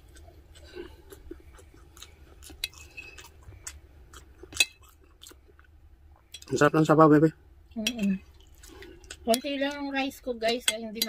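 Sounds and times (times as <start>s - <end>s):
chewing meat: 0.0s - 6.7s, 8.2s - 9.8s.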